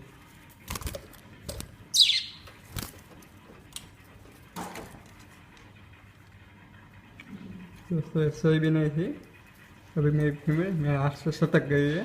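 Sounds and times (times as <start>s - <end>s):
budgerigar squawking: 2.0s - 2.4s.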